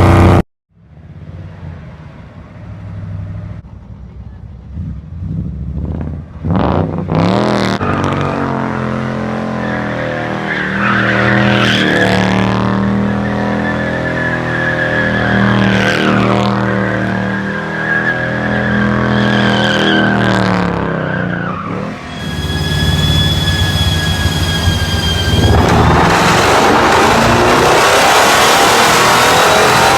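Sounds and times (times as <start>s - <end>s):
car engine revving: 4.7s - 29.9s
high steady squeal: 21.1s - 29.9s.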